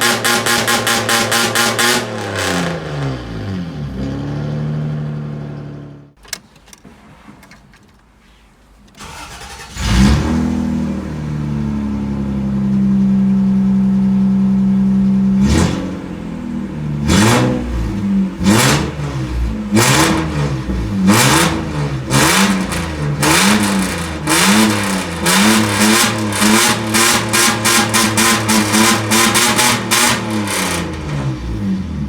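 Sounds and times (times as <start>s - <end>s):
car engine revving and idling: 0.0s - 6.2s, 9.0s - 32.0s.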